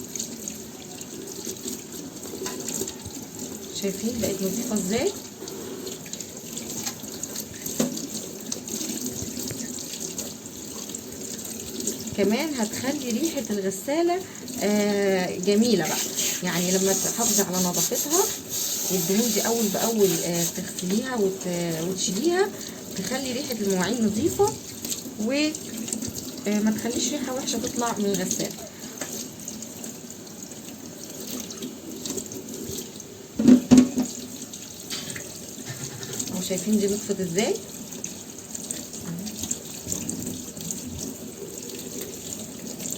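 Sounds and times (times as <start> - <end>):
tap water running: 0.0 - 42.9
water splashing: 0.0 - 42.9
knock: 33.4 - 34.2.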